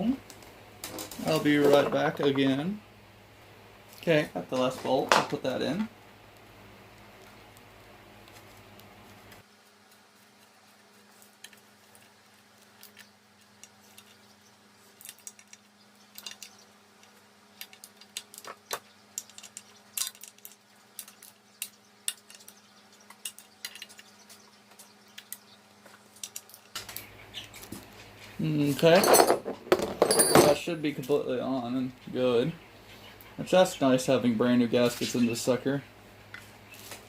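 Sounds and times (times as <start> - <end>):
metallic clicks and clinks: 15.0 - 24.1.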